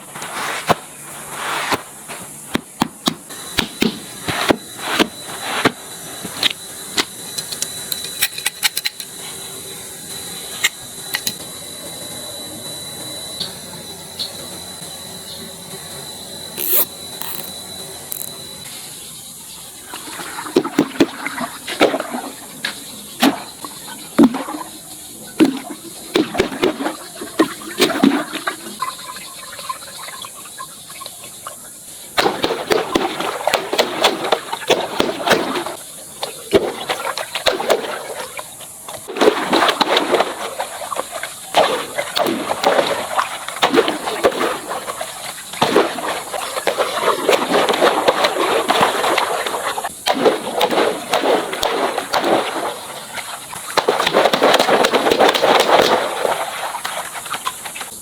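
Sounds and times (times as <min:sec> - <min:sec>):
sharp clicks and pops: 0:16.6 - 0:18.4.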